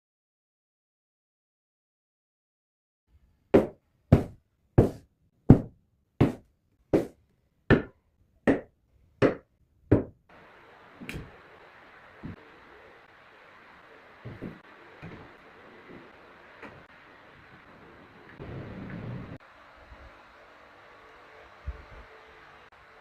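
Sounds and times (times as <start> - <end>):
faint room hiss: 10.3 - 23.0.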